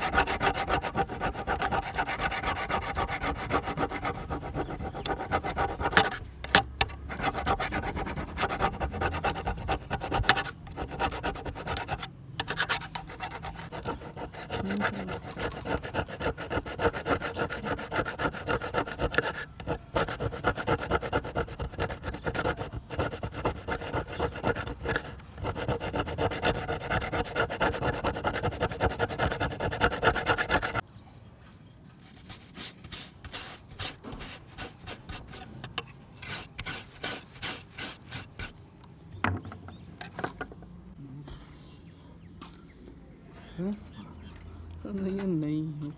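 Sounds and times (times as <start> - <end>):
hand tool rasping: 0.0 - 30.8, 32.8 - 38.5.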